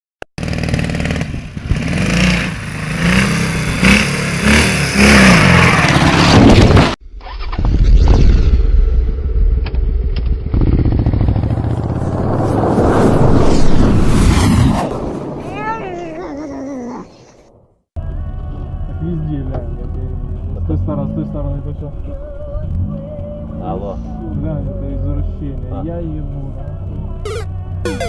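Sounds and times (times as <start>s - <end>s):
motorcycle engine revving: 0.4s - 7.5s, 8.9s - 13.0s.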